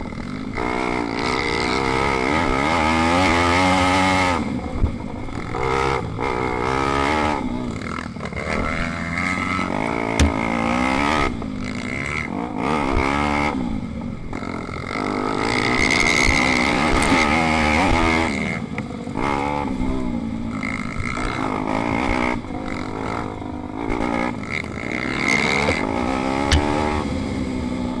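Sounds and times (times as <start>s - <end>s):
motorbike engine revving: 5.3s - 13.8s, 19.2s - 28.0s.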